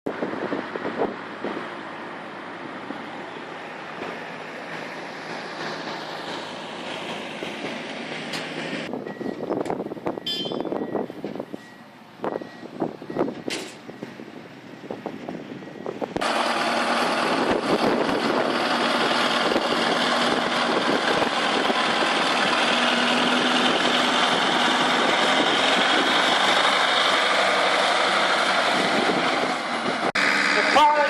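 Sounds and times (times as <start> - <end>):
tractor engine droning: 0.1 - 31.0
irregular knocks and clatter: 3.9 - 8.9.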